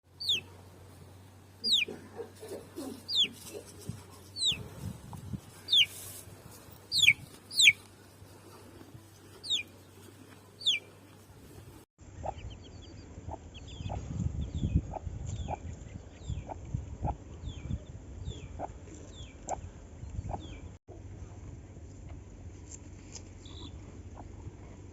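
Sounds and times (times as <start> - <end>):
chicks peeping: 0.2 - 0.5, 1.6 - 6.0, 6.9 - 7.9, 9.3 - 11.0, 12.1 - 20.6.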